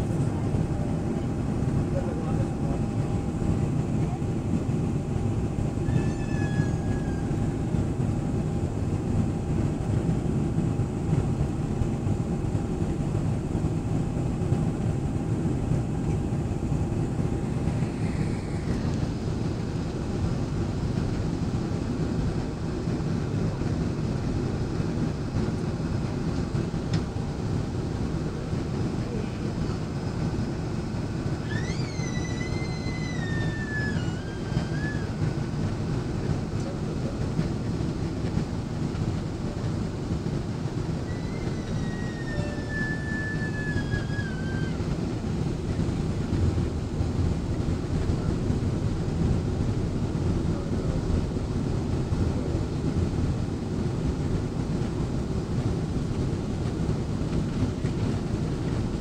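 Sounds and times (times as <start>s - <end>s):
airliner engines rumbling in cabin: 0.0s - 59.0s.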